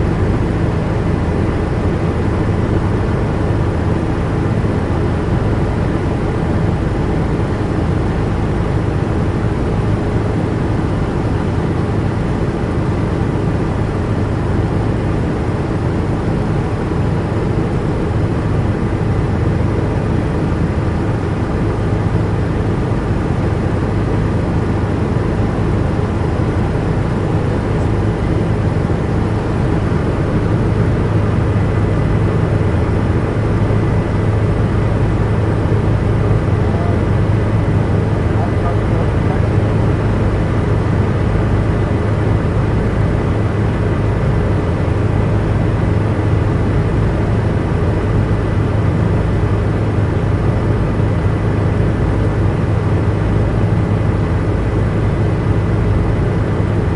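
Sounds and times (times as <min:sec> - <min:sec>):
helicopter engine and rotor noise: 0:00.0 - 0:56.9.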